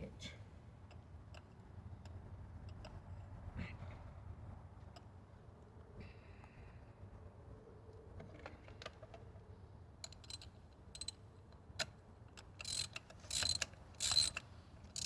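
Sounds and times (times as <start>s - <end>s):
ratchet wrench clicks and taps: 10.0s - 11.2s, 11.8s - 15.0s
ratchet wrench ratcheting: 10.0s - 11.2s, 12.4s - 15.0s.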